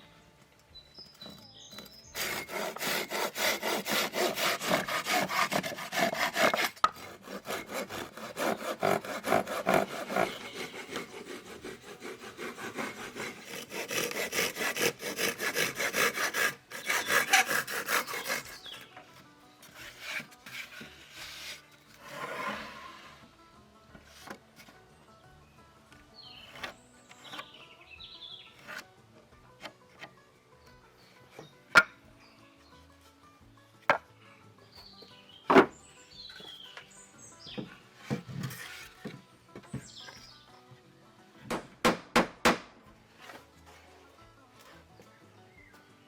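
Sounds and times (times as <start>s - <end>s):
hand saw cutting wood: 1.2s - 19.0s, 19.6s - 23.3s, 26.2s - 27.6s, 28.4s - 28.9s, 35.5s - 40.2s.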